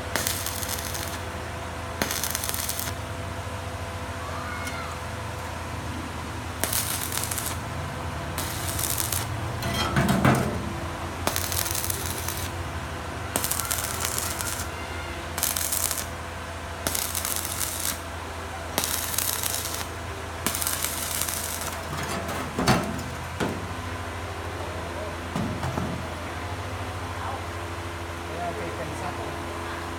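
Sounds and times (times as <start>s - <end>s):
arc welding hissing: 0.0s - 3.3s, 6.3s - 9.8s, 10.4s - 16.2s, 16.8s - 23.7s
low machine hum: 0.0s - 29.9s.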